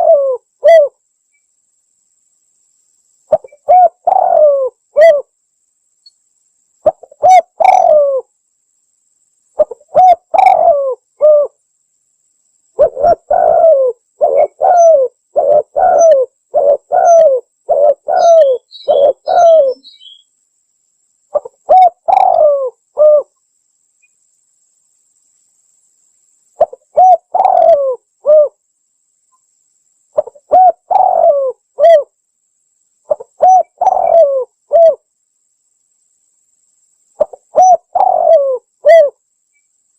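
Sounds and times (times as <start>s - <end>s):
dove cooing: 0.0s - 1.0s, 3.3s - 5.3s, 6.8s - 8.3s, 9.6s - 11.6s, 12.8s - 20.2s, 21.3s - 23.3s, 26.6s - 28.6s, 30.2s - 32.1s, 33.1s - 35.0s, 37.2s - 39.2s.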